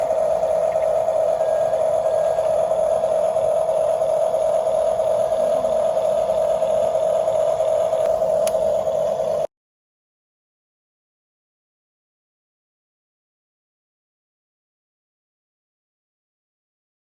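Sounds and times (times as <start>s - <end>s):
toy electric motor whine: 0.0s - 9.5s.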